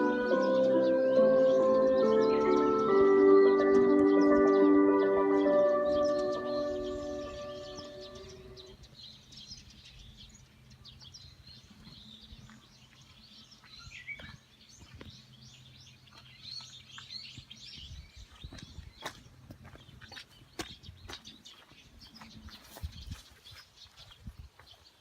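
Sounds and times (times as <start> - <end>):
outdoor loudspeaker chime: 0.0 - 8.8
small birds chirping: 0.0 - 25.0.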